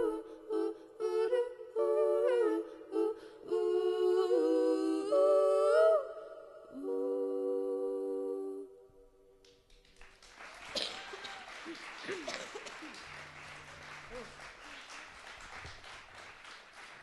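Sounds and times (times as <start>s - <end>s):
women singing a cappella harmony: 0.0s - 9.2s.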